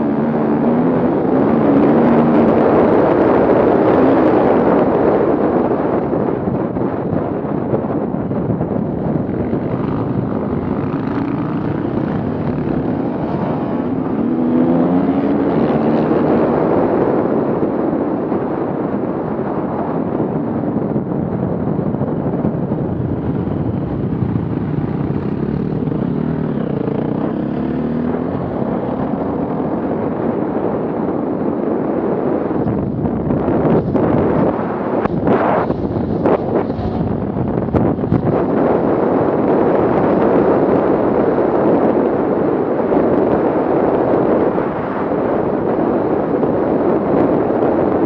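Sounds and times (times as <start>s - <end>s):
off-road vehicle engines revving: 9.2s - 17.1s.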